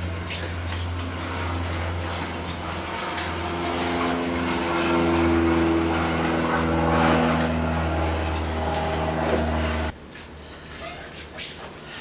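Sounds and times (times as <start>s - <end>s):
motor hum: 0.0s - 9.9s.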